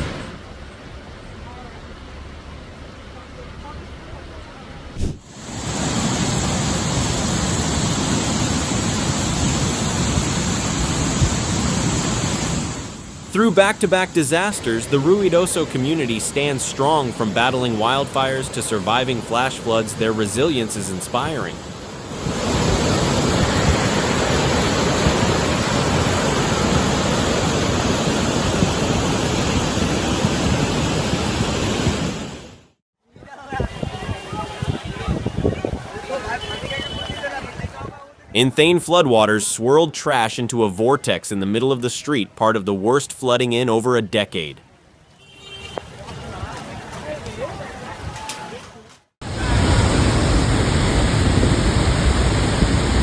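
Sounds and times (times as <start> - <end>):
fast water rushing: 0.0 - 4.4, 5.0 - 32.7, 49.2 - 53.0.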